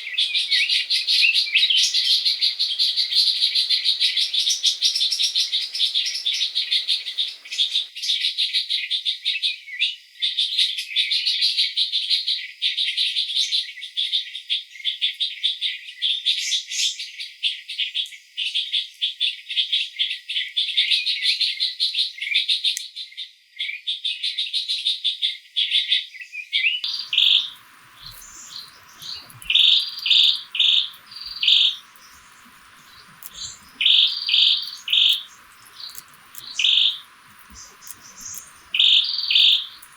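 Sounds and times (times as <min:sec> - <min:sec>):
birds chirping: 0:00.0 - 0:07.9, 0:26.8 - 0:39.9.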